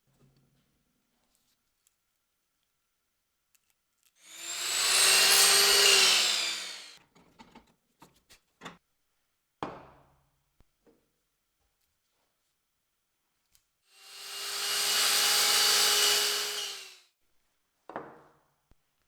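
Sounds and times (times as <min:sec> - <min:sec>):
power tool cutting wood: 0:04.3 - 0:07.0, 0:14.0 - 0:17.0.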